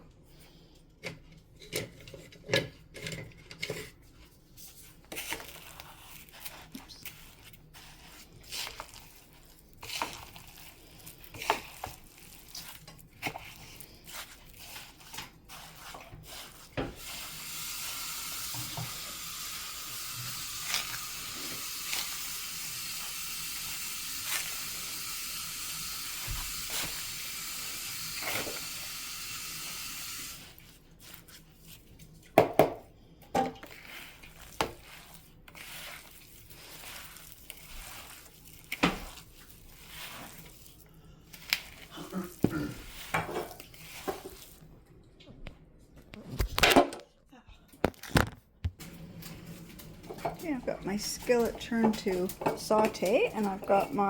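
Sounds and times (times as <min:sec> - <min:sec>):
stirring knocks and clinks in bowl: 0:01.0 - 0:17.3, 0:30.4 - 0:44.7, 0:48.8 - 0:54.0.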